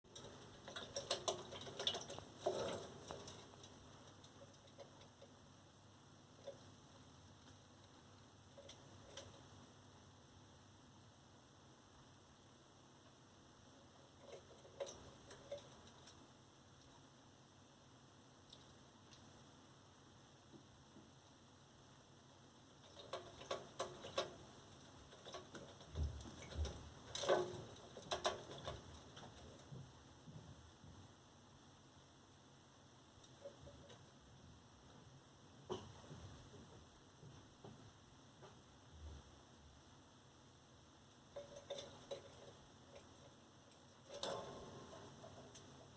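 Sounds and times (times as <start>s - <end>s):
parakeet bathing in water: 0.1s - 9.8s, 13.6s - 17.2s, 22.5s - 30.4s, 41.0s - 45.9s.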